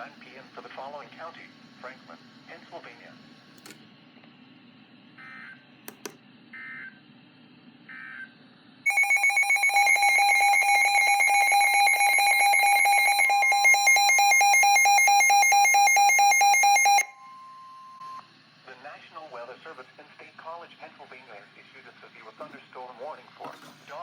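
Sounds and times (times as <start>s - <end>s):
faint digital data bursts: 8.9s - 18.3s.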